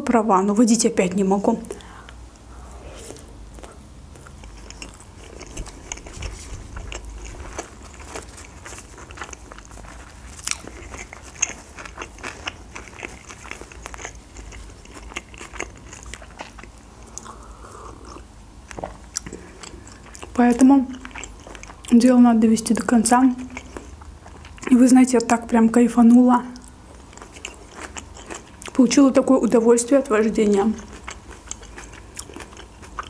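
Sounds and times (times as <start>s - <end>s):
person chewing food: 1.7s - 22.0s, 23.4s - 24.7s, 26.6s - 28.8s, 30.8s - 33.0s.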